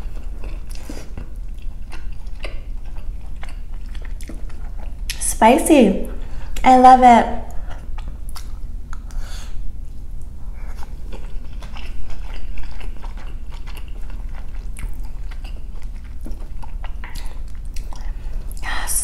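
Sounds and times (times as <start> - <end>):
wet mouth clicks and smacks: 8.0 - 9.2.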